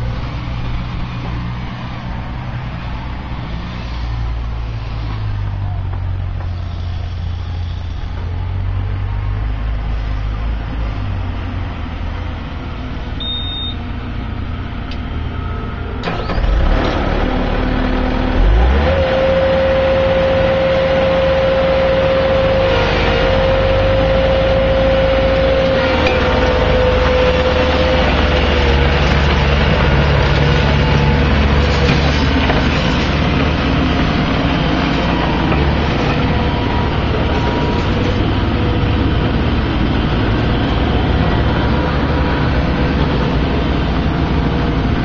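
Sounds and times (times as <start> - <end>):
loader engine revving: 13.2 - 45.0.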